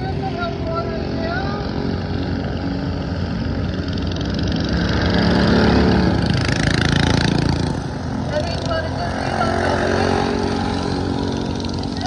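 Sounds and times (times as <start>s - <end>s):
racing lawn mowers: 0.0s - 12.0s.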